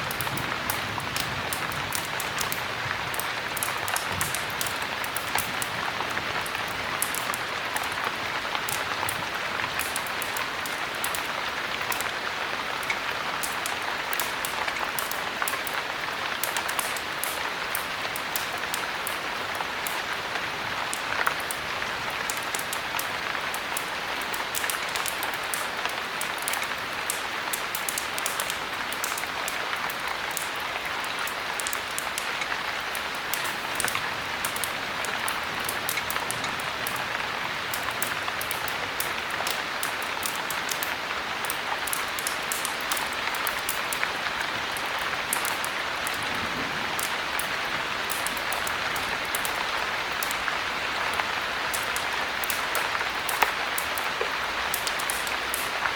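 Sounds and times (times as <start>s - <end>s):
small sharp ticks: 0.1s - 5.8s, 23.8s - 37.0s, 37.7s - 46.2s, 51.2s - 55.9s.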